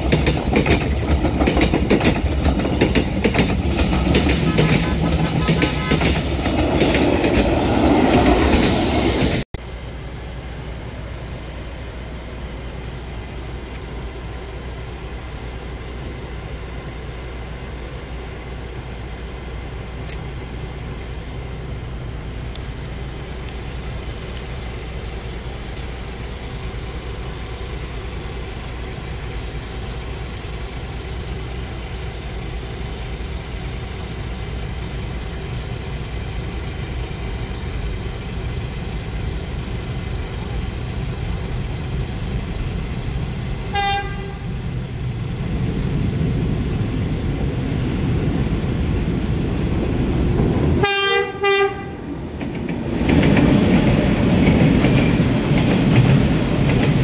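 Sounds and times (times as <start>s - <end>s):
motorbike engines idling: 0.0s - 7.1s
passenger train passing: 0.0s - 57.0s.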